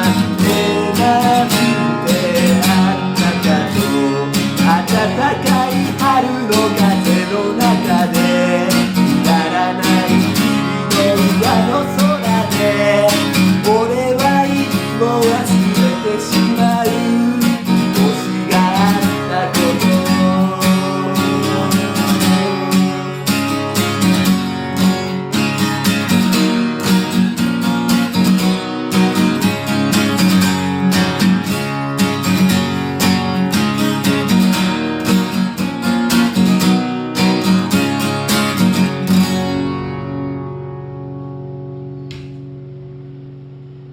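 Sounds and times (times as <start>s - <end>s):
acoustic guitar strummed: 0.0s - 43.9s.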